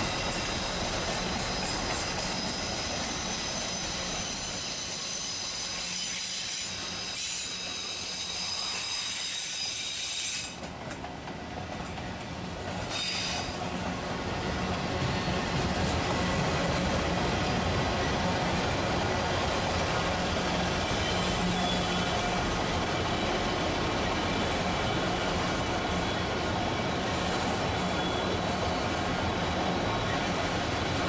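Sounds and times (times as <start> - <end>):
train wheels squealing: 0.0 - 10.7, 12.8 - 13.8, 19.9 - 31.0
rumble of train cars: 0.0 - 31.0.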